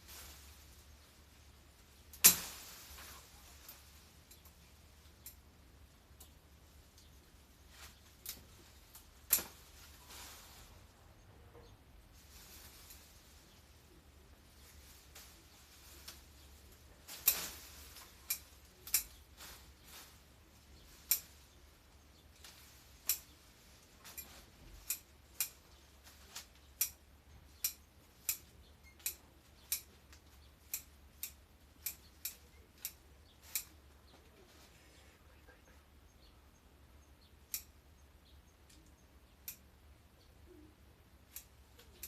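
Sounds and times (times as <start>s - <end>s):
garden shears snipping plants: 14.4s - 34.4s, 41.2s - 42.0s.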